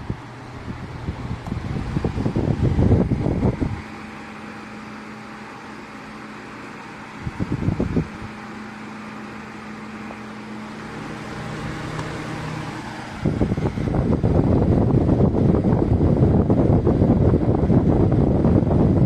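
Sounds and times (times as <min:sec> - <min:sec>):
wind rumble on microphone: 0:00.0 - 0:04.0, 0:07.2 - 0:08.4, 0:11.7 - 0:19.0
desk fan motor hum: 0:00.0 - 0:19.0.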